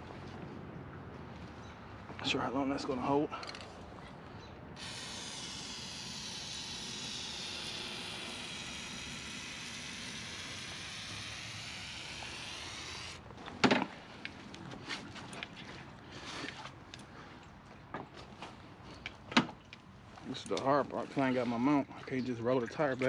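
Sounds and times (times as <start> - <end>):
aerosol can spraying: 4.8 - 13.2.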